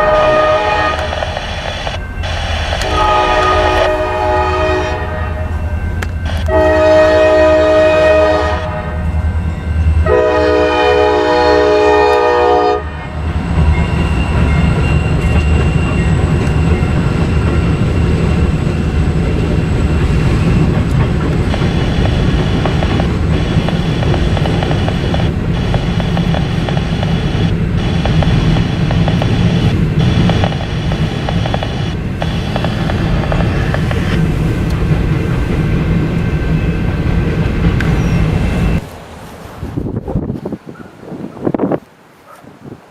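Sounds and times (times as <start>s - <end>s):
locomotive air horn blasts: 0.0s - 9.4s, 10.0s - 13.2s
train rumbling past: 0.0s - 41.8s
wheels clacking over rail joints: 13.5s - 38.8s.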